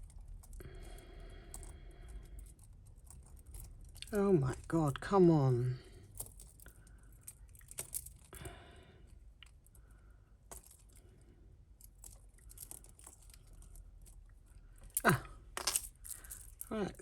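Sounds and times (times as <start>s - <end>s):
jewellery chains jingling: 0.0s - 8.4s, 14.8s - 17.0s
small metal clicks: 14.8s - 16.8s.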